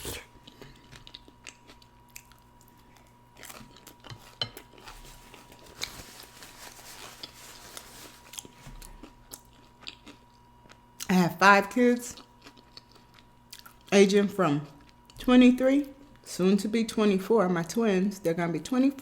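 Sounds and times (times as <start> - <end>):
person chewing and biting food: 0.0 - 11.1, 12.2 - 13.9.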